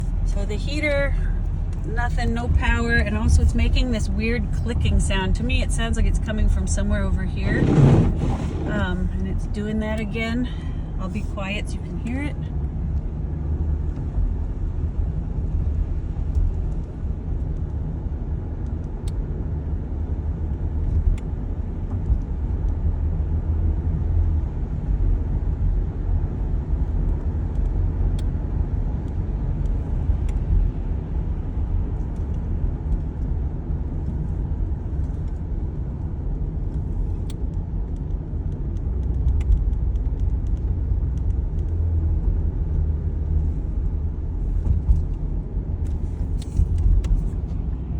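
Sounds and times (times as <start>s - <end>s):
car engine rumble: 0.0s - 47.9s
faint clicks inside car: 45.8s - 47.6s.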